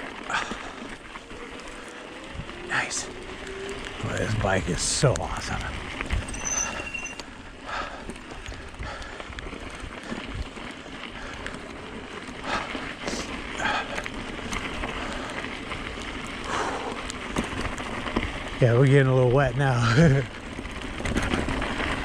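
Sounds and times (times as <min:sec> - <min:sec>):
bike tyres rolling over dirt: 0:00.0 - 0:22.0.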